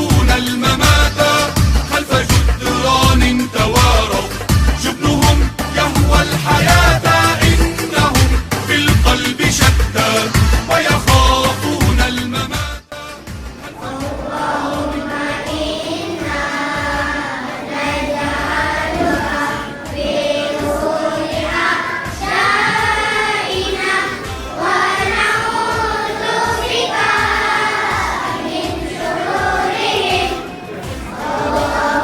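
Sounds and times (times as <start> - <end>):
choir singing: 0.0 - 12.5, 13.5 - 32.0
backing music with steady beat: 0.0 - 32.0.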